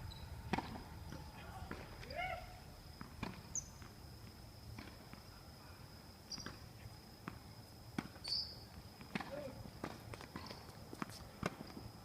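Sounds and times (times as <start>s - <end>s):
tennis balls hit and bouncing: 0.4s - 2.1s, 2.9s - 5.3s, 6.3s - 11.9s.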